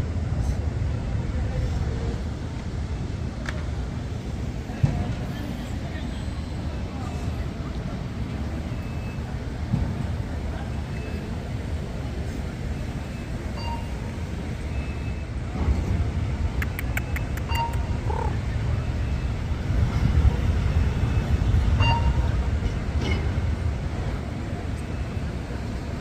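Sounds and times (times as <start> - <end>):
quick run of clicks: 16.6 - 17.8.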